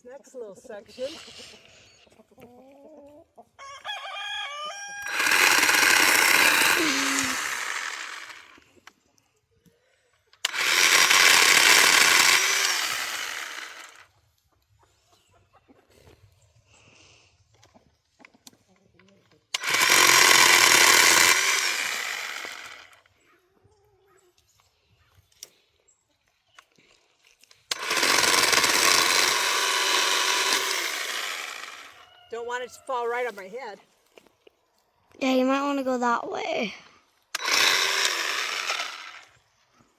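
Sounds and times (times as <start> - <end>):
chainsaw running in bursts: 5.0 - 8.8, 10.4 - 14.1, 19.6 - 23.0, 27.6 - 32.0, 37.3 - 39.6.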